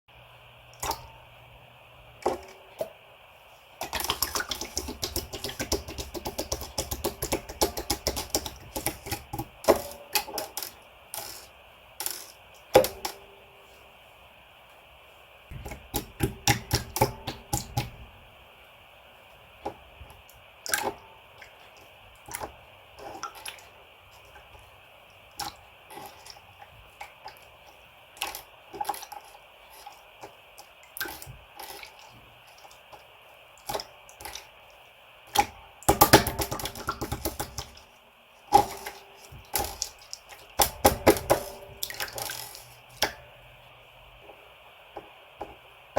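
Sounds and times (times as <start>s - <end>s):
rapid clicking of slime: 3.8s - 13.2s, 35.3s - 37.8s.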